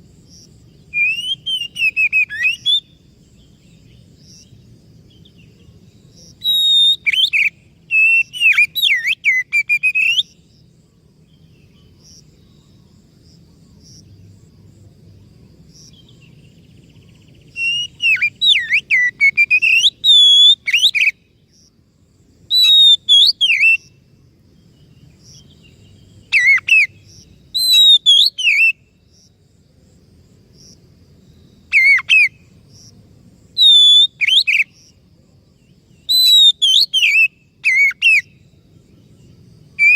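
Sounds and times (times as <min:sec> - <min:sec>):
songbird whistling: 0:00.9 - 0:03.0, 0:06.4 - 0:10.4, 0:17.0 - 0:21.2, 0:22.5 - 0:23.9, 0:26.3 - 0:26.9, 0:27.6 - 0:28.8, 0:33.6 - 0:34.7, 0:36.1 - 0:38.4.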